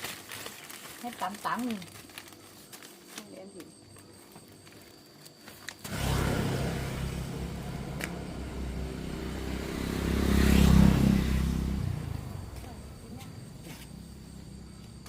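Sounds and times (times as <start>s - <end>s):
vehicle engine driving past: 5.8s - 15.0s.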